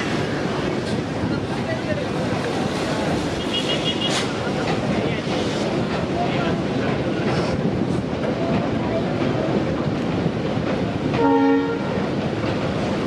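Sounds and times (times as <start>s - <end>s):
train rumbling on bridge: 0.0s - 13.0s
train horn blast: 11.2s - 12.0s.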